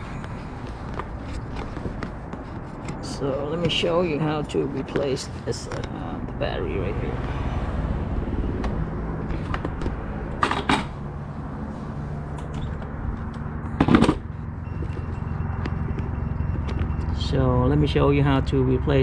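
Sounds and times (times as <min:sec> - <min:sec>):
rustling and clicking handling noise: 0:00.0 - 0:06.4.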